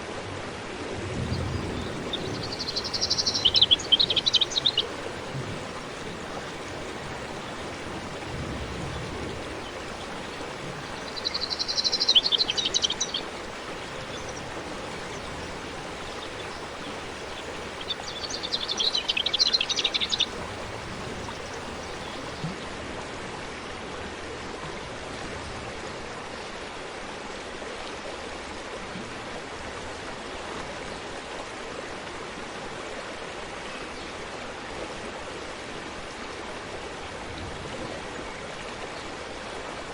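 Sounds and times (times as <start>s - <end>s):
stream flowing: 1.2s - 23.1s
songbird trilling: 1.3s - 22.5s.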